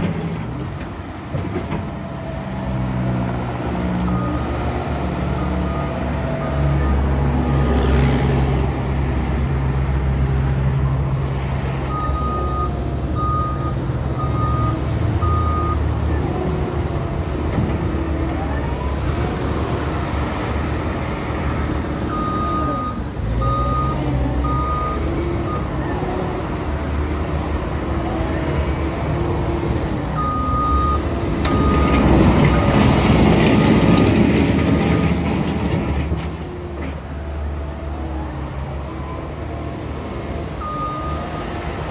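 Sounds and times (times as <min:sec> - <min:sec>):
wheel loader diesel engine: 0:00.0 - 0:41.9
reverse alarm beeps: 0:40.6 - 0:41.2.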